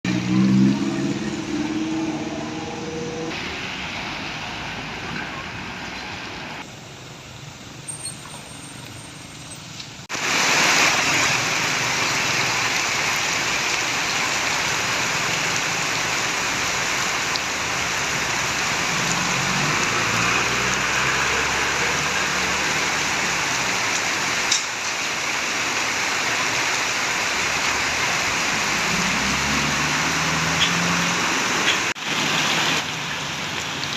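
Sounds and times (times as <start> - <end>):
heavy rain: 0.0 - 7.8, 9.5 - 33.9
tyre spray on wet road: 0.1 - 33.9
truck engine: 16.5 - 24.8, 26.9 - 32.0.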